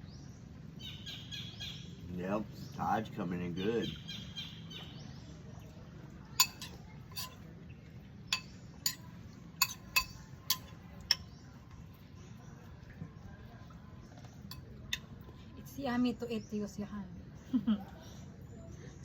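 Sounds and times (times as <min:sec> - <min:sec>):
cutlery and dishes clinking: 0:06.4 - 0:07.4, 0:08.3 - 0:11.4.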